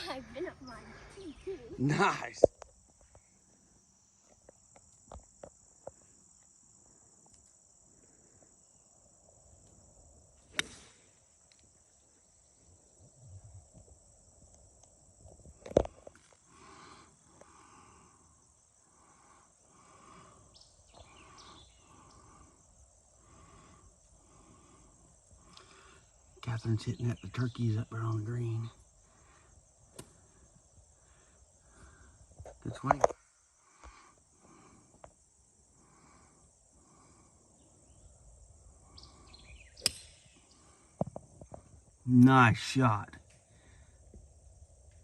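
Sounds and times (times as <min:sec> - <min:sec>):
soft evenly spaced pulses: 0:00.0 - 0:41.0
insects chirping: 0:00.0 - 0:45.0
loud crack: 0:10.6 - 0:11.1.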